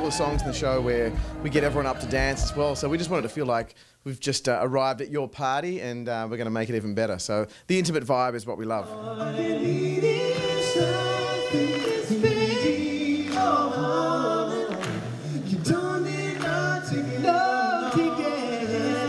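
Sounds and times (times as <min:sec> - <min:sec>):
male vocal quartet singing: 0:08.8 - 0:19.0.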